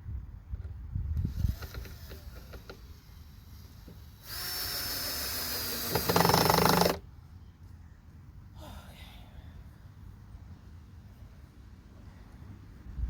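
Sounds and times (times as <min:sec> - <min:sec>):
power drill whining: 0:01.2 - 0:07.0.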